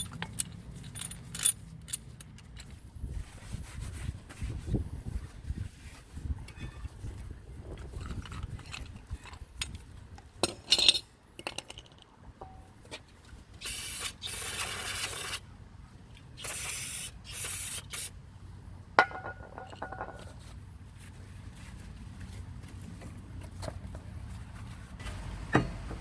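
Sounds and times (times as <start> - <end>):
metal clinks and taps: 0.0 - 2.7, 19.0 - 20.3.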